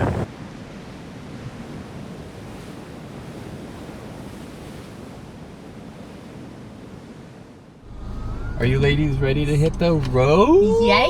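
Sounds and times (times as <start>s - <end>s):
wind on microphone: 0.0s - 7.1s
ocean surf washing on shore: 0.0s - 7.8s.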